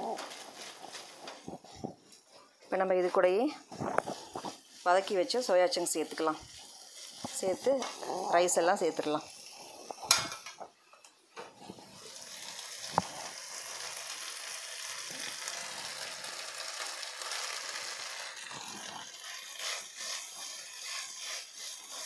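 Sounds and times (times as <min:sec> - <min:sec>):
vegetables sizzling in a pan: 0:00.0 - 0:10.6, 0:11.5 - 0:22.0
spatula scraping and stirring: 0:00.0 - 0:14.6, 0:15.2 - 0:22.0.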